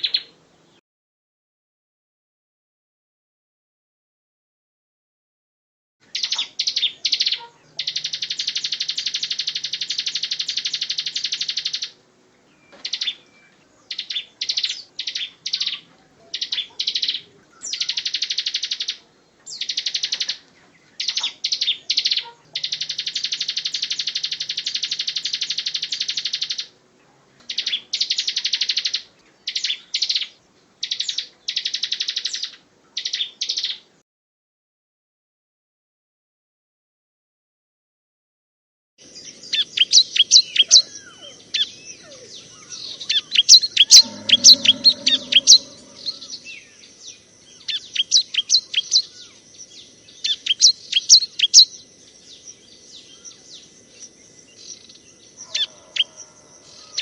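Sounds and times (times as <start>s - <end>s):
bird singing with rapid trills: 0.0s - 0.4s, 6.0s - 26.8s, 27.4s - 33.8s, 39.0s - 56.2s.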